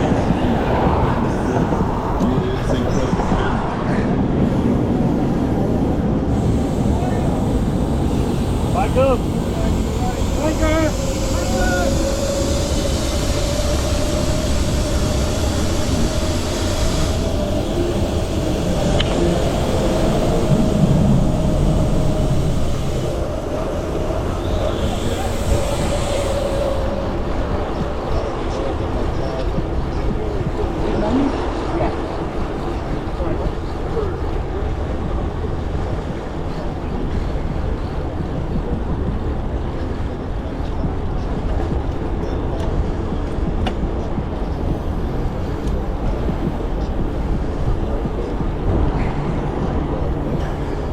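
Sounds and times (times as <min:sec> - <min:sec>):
bicycle tyre noise: 0:00.0 - 0:35.2
wind rushing over microphone: 0:00.0 - 0:50.9.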